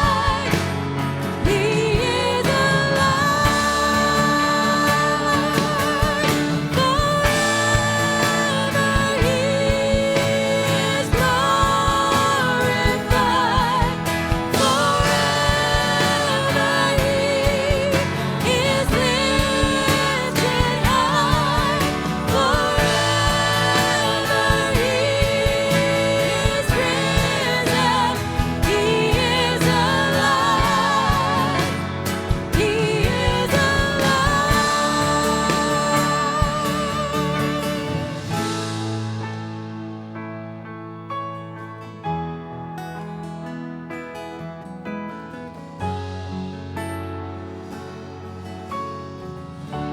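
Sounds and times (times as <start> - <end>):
people singing: 0.0 - 38.8
worship band playing: 0.0 - 40.6, 45.8 - 49.9.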